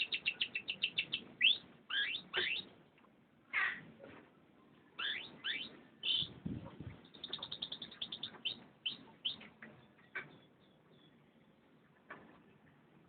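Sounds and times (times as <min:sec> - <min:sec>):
canary singing: 0:00.0 - 0:02.8, 0:05.0 - 0:11.6.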